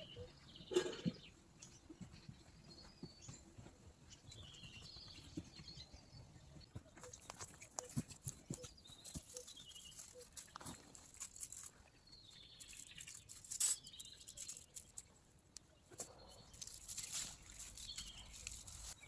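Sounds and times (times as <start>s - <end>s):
birds singing: 0.0s - 11.0s, 11.8s - 19.0s
sharp clicks and crackles: 7.0s - 11.8s, 12.5s - 19.0s.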